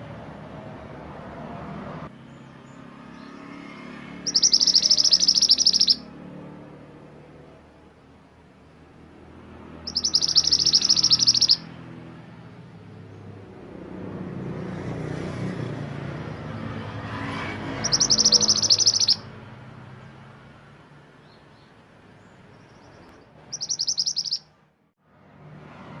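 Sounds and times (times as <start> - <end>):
songbird trilling: 4.2 - 6.1, 9.8 - 11.7, 17.8 - 19.3, 22.5 - 24.5.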